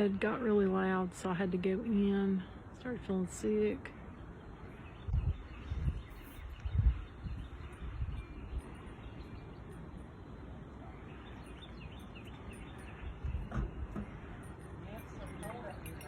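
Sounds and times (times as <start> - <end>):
wind buffeting microphone: 4.3 - 16.0.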